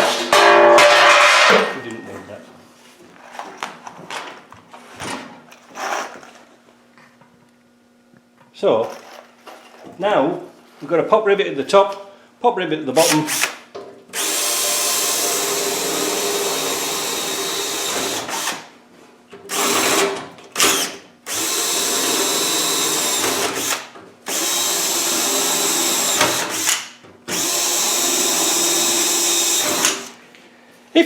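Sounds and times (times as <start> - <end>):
power drill running: 13.0 - 18.7, 19.5 - 30.2.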